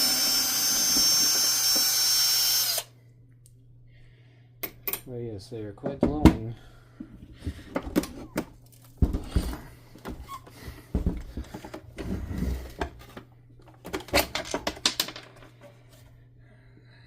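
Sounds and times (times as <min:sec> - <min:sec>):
plastic parts clicking and knocking: 0:12.7 - 0:15.8.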